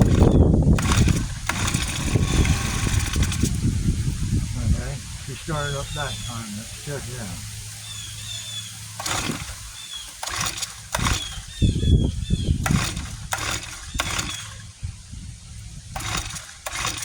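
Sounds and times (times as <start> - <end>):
birds chirping: 0.0 - 16.7.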